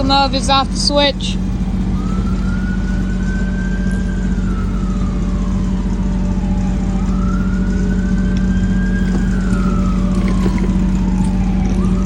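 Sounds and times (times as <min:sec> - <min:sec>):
engine humming: 0:00.0 - 0:12.0
siren wailing: 0:00.0 - 0:12.0.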